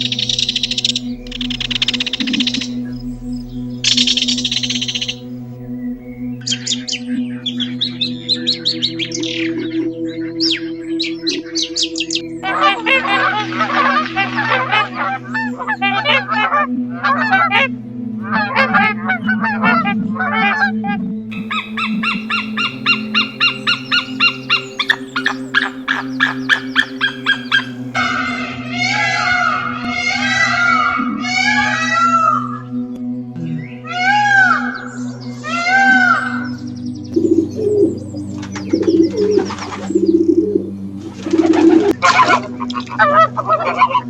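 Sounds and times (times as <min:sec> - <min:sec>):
bird chirps and trills: 0:00.0 - 0:16.6, 0:21.3 - 0:44.0
dove cooing: 0:21.3 - 0:28.3, 0:37.2 - 0:44.0
bird calling rapidly: 0:21.3 - 0:32.6.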